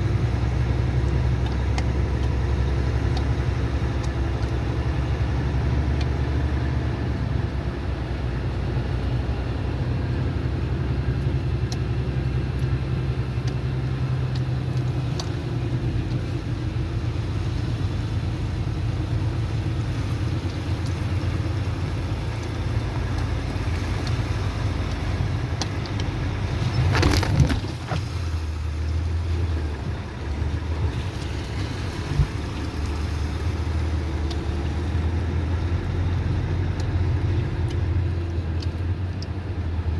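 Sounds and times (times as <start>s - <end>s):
engine humming: 0.0s - 39.9s.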